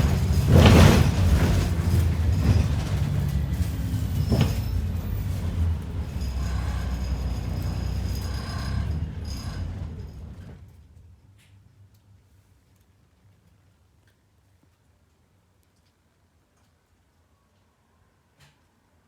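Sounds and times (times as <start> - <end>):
cabin rattles: 0.0 - 9.0
diesel bus engine humming: 0.0 - 10.6.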